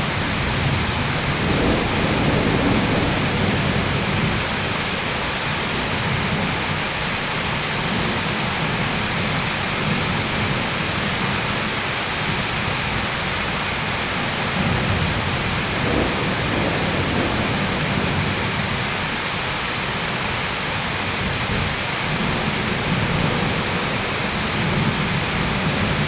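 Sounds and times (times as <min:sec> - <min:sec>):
low rolling thunder: 0:00.0 - 0:06.8, 0:14.3 - 0:19.3, 0:21.1 - 0:26.0
heavy rain: 0:00.0 - 0:26.0.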